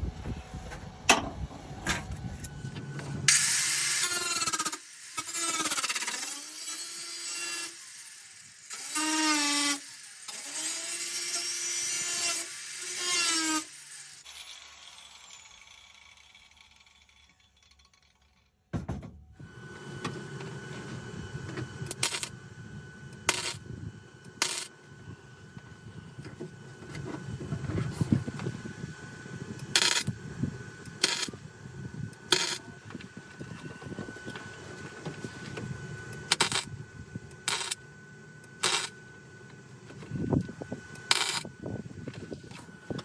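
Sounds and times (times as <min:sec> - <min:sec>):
welder tack welds on steel: 0:03.3 - 0:18.6, 0:21.8 - 0:22.3, 0:23.2 - 0:23.6, 0:24.3 - 0:24.7, 0:29.6 - 0:30.2, 0:30.8 - 0:31.5, 0:32.1 - 0:32.7, 0:36.1 - 0:36.7, 0:37.3 - 0:37.8, 0:38.4 - 0:39.0, 0:40.9 - 0:41.5.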